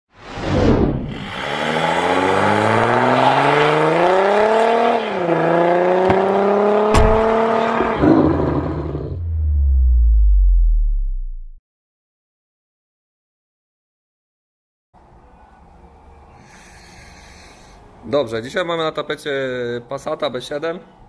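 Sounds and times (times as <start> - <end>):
car engine accelerating: 1.1 - 11.6
deep bass tone sliding down: 6.8 - 11.6.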